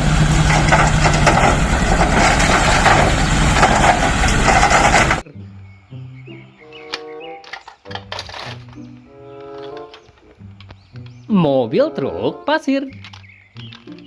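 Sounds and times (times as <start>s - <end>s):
dump truck engine running: 0.0s - 5.2s
quiet music with held notes: 5.2s - 14.0s.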